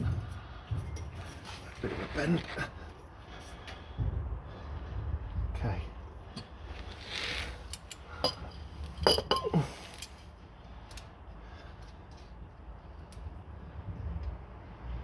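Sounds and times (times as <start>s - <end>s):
metal tools clinking and knocking: 6.4s - 10.3s.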